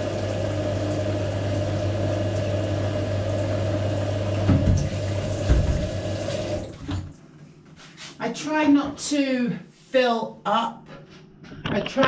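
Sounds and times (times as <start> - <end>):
tap water running into bucket: 0.0 - 7.2
dull knocks: 4.4 - 6.0.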